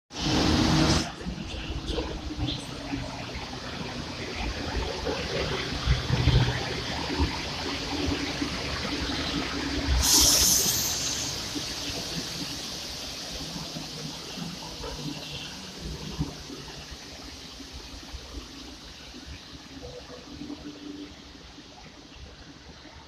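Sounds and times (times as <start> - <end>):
loud hiss: 9.2 - 17.6.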